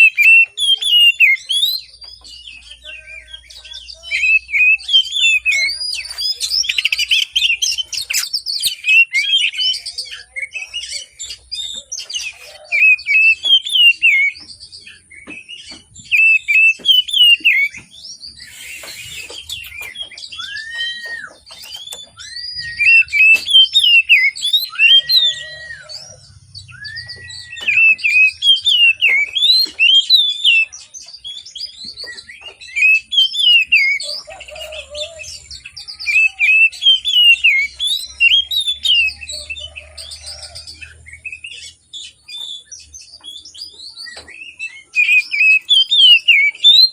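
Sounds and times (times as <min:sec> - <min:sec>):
bird twittering song: 0:00.0 - 0:46.9
slow whistled bird notes: 0:15.2 - 0:46.9.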